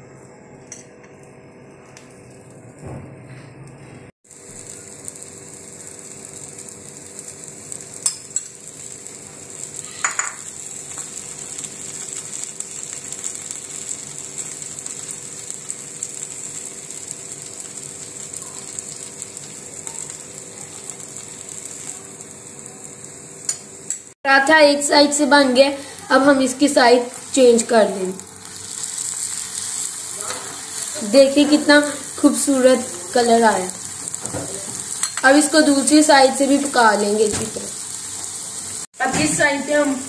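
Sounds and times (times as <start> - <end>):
flatbread sizzling in oil: 4.2 - 24.2, 24.8 - 40.0.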